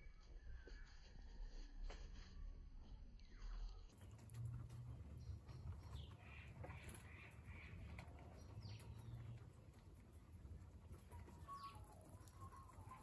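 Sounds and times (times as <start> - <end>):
faint bird chirps: 0.0 - 1.7.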